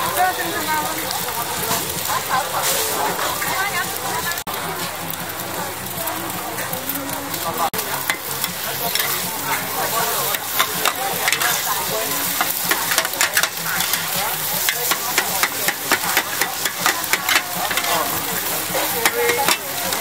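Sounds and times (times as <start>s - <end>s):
egg batter sizzling on pan: 0.0s - 20.0s
metal spatulas clacking on pan: 8.0s - 20.0s.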